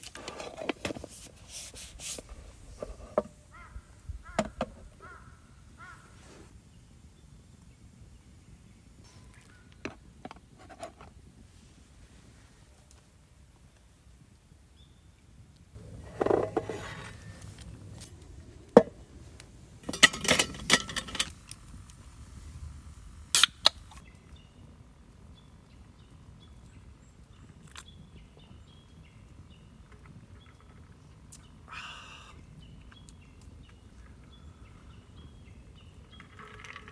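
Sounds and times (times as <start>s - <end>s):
handling scrape: 0.0s - 3.4s, 15.8s - 21.6s.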